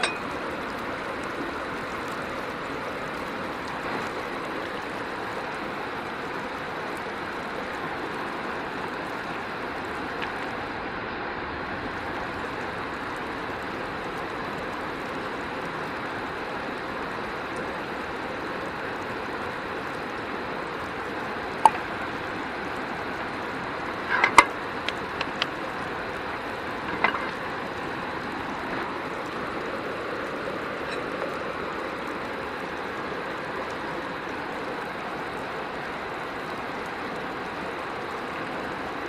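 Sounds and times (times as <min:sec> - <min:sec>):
river flowing: 0:00.0 - 0:39.0
sharp clicks and knocks: 0:24.0 - 0:25.6, 0:26.8 - 0:27.5.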